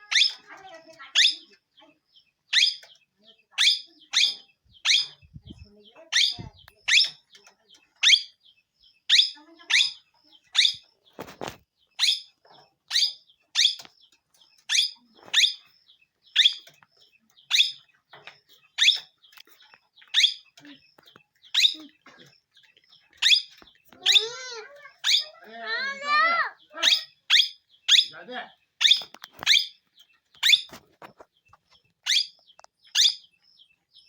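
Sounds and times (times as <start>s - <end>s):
parrot calling: 23.2s - 28.2s.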